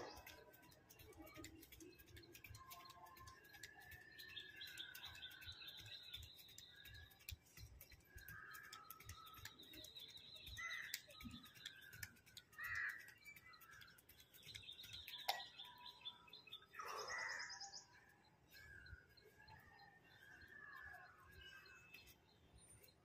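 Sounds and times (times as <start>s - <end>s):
birds chirping: 0.0s - 23.0s
harsh bird calls: 7.9s - 22.2s.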